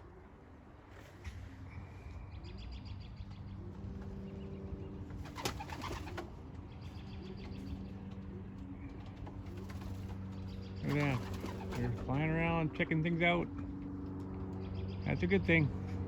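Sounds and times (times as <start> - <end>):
pigeons cooing: 0.0 - 12.2
wings flapping: 5.1 - 6.4, 8.9 - 12.1.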